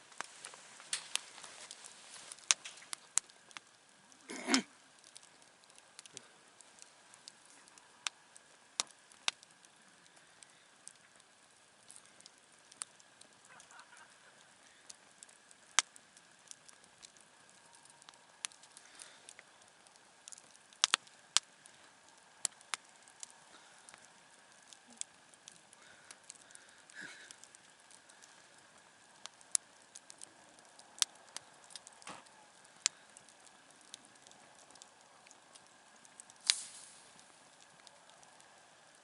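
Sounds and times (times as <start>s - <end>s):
campfire crackling and popping: 0.0s - 39.0s
faint steady hiss: 0.0s - 39.0s.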